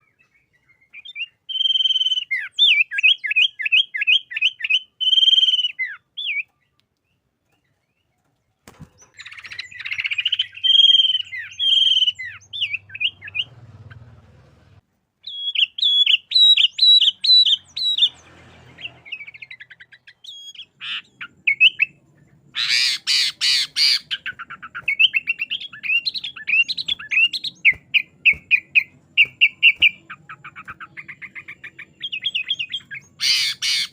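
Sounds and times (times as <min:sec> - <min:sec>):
bird singing chirps and whistles: 0:00.0 - 0:07.2, 0:09.0 - 0:13.5, 0:15.2 - 0:33.9
harsh rasping bird call: 0:09.2 - 0:22.0, 0:22.6 - 0:33.9.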